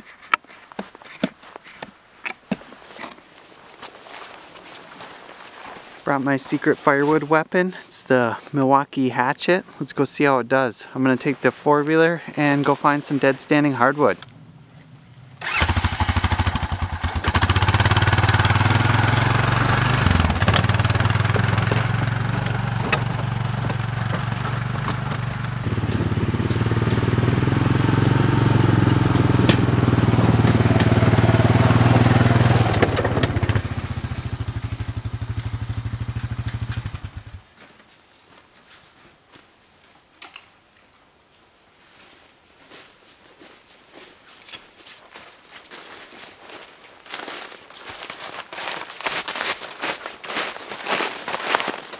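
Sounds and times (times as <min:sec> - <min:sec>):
atv engine chugging: 0:14.2 - 0:37.4.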